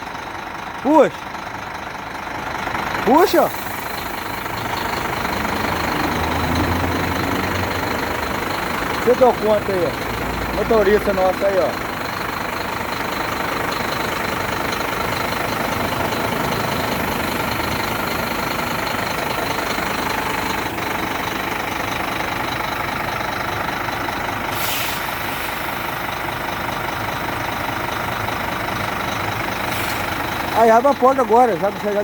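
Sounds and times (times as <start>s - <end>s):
truck diesel engine running: 0.0s - 32.0s
short air hiss: 24.5s - 25.8s.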